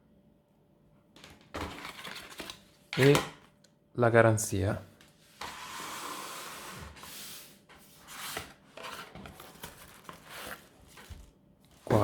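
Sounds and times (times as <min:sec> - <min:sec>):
packaging rubbing and sliding: 0:05.2 - 0:12.0
light knocks and rustles: 0:11.0 - 0:12.0.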